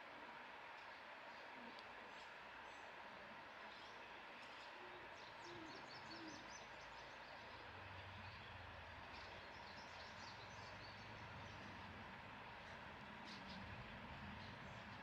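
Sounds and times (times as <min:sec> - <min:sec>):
small birds chirping: 0:03.7 - 0:11.9.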